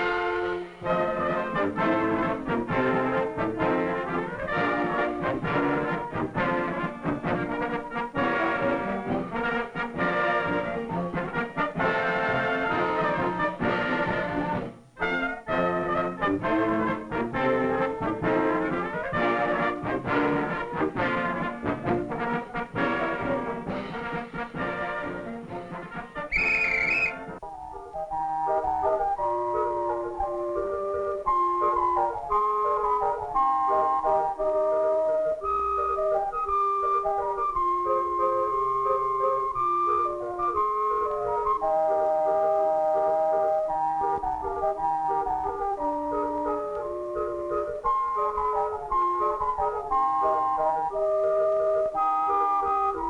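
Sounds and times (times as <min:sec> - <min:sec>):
brass band playing: 0:00.0 - 0:27.4
high whistle-like tone: 0:26.2 - 0:27.4.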